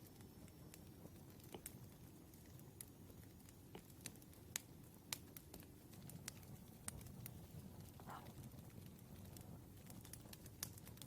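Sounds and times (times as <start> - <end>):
faint wood fire crackling: 0.0 - 11.0.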